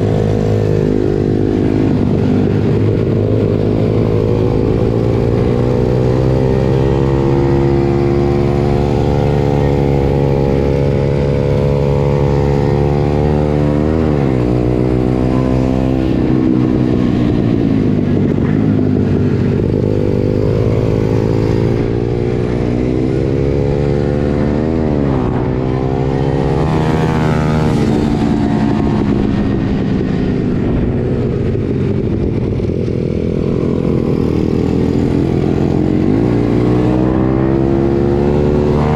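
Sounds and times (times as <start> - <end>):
pit bike engine revving: 33.6 - 38.9.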